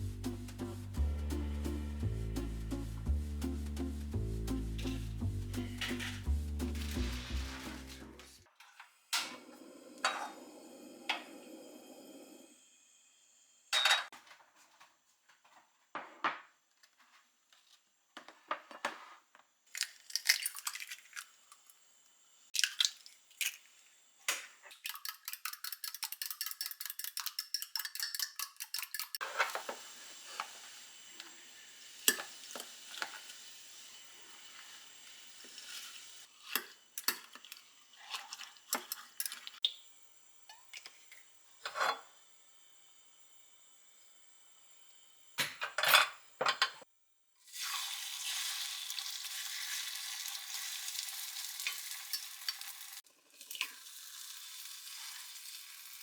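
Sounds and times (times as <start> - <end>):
utensils and dishes clinking: 5.6 - 8.2, 24.8 - 29.6, 52.0 - 52.7.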